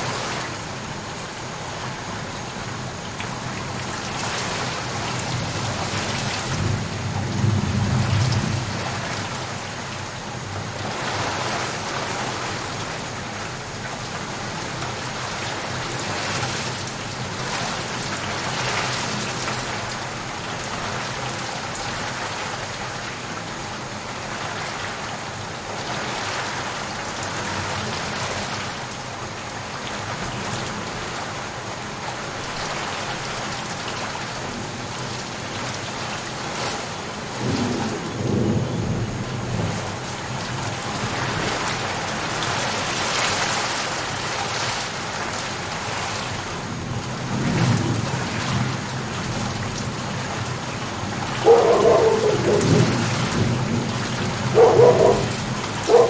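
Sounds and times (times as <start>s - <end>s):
heavy rain: 0.0s - 56.0s
thunder rolling: 51.0s - 56.0s.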